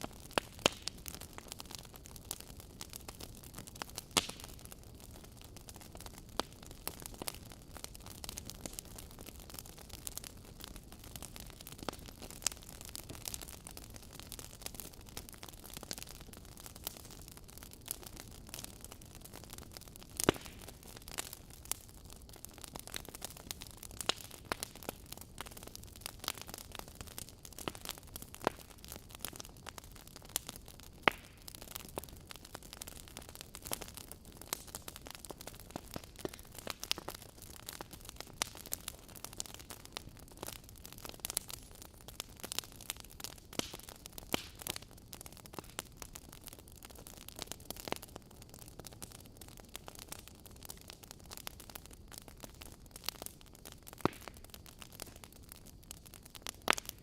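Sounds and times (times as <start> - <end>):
log fire crackling: 0.0 - 57.0.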